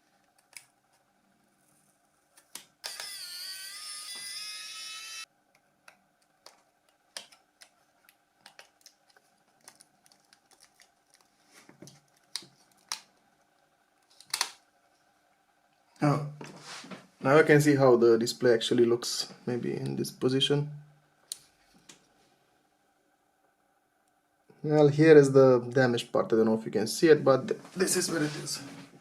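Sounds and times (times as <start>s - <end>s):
loud multi-pitch whine: 2.8s - 5.3s.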